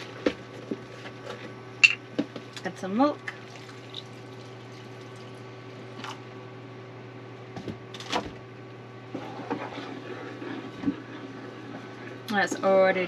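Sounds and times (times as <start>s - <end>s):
steady low hum: 0.0s - 13.0s
faint scraping in pan: 9.1s - 12.2s.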